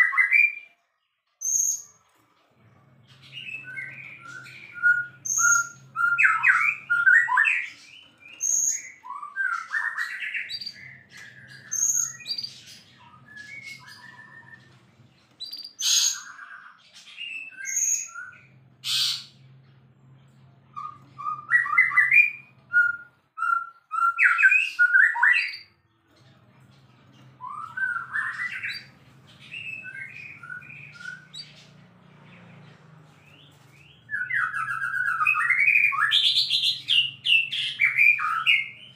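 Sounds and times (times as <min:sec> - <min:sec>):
songbird singing varied song: 0:03.2 - 0:14.7.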